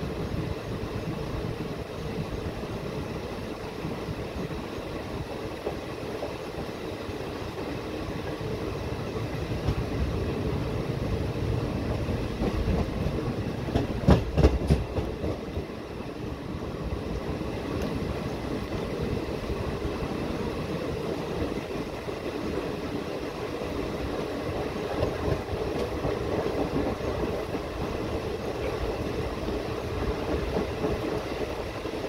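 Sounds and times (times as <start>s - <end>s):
train wheels rumbling on rails: 0.0s - 32.0s
loud wheel clacks on track: 12.4s - 15.6s.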